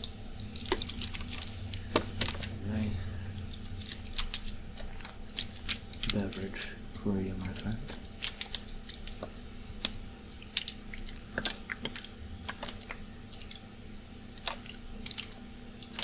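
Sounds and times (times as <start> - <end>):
plastic water bottle crinkling: 0.0 - 2.6
air conditioner hum: 0.0 - 16.0.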